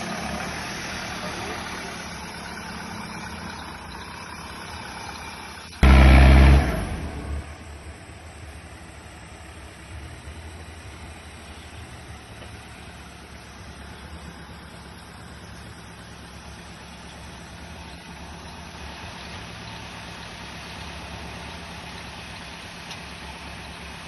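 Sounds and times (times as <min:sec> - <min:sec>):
engine revving: 0:00.0 - 0:08.6
off-road engine running: 0:00.0 - 0:24.0.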